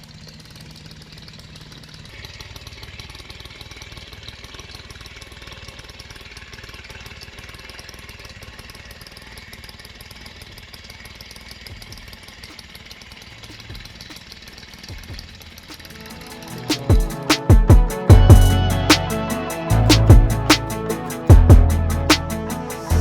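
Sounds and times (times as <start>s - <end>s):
two-stroke engine running: 0.0s - 23.0s
low thumps: 16.9s - 18.7s.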